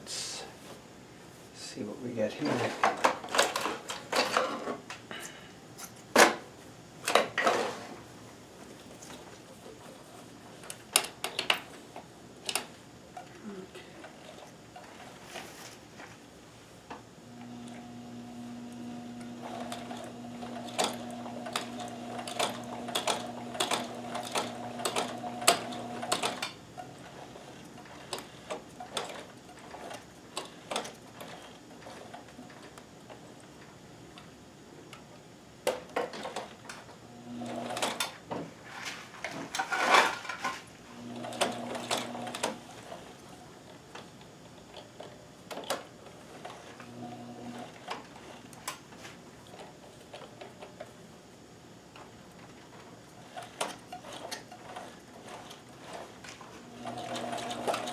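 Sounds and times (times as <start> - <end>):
sewing machine stitching: 17.4 - 32.7, 37.2 - 38.1, 41.0 - 43.2, 53.2 - 57.9.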